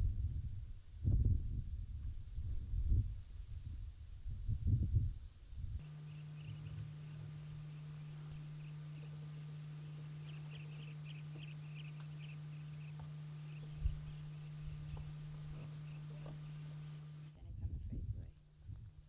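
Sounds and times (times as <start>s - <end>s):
steady low hum: 0.0s - 19.0s
high quick chirps: 5.8s - 17.3s.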